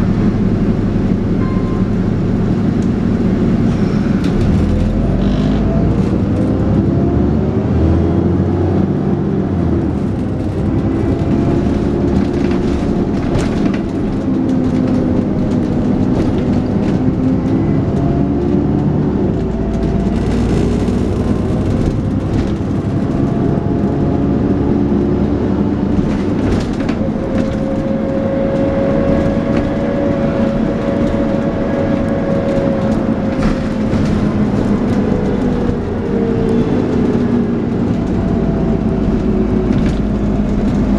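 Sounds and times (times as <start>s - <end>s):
steady whine: 0.0s - 5.0s
bus body rattles: 0.0s - 7.0s, 9.4s - 40.9s
bus engine changing gear: 0.0s - 40.9s.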